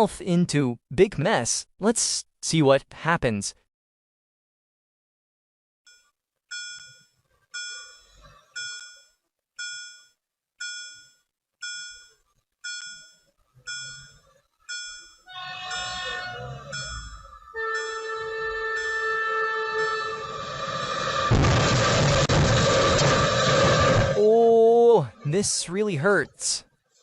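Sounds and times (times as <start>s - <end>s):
railroad crossing bell dinging: 12.7s - 20.3s
train horn: 17.5s - 24.2s.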